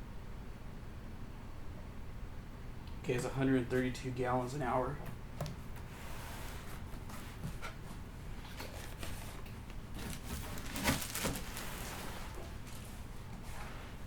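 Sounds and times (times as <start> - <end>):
packaging rustling: 8.5 - 13.0.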